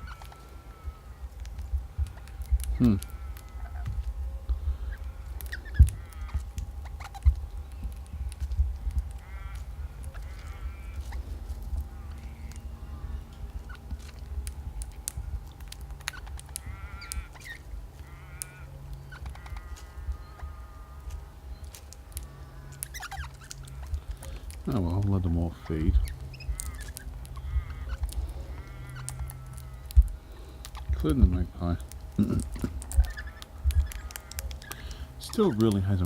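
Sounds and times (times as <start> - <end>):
birds nasal calls: 0.0 - 36.0
steady low rumble: 0.0 - 36.0
sharp clicks: 31.8 - 35.8.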